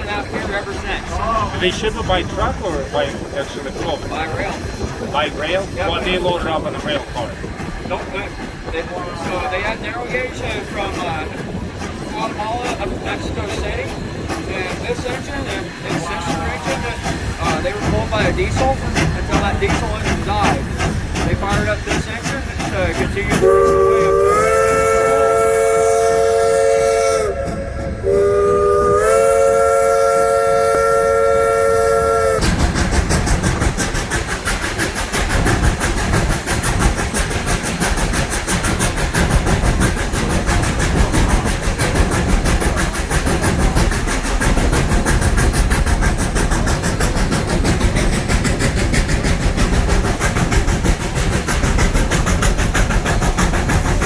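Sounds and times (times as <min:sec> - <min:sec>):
train running with clatter: 0:00.0 - 0:54.0
steam locomotive whistle: 0:23.3 - 0:32.4.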